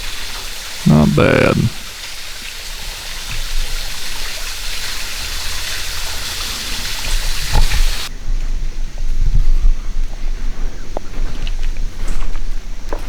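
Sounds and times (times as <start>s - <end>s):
small waterfall splashing: 0.0s - 8.1s.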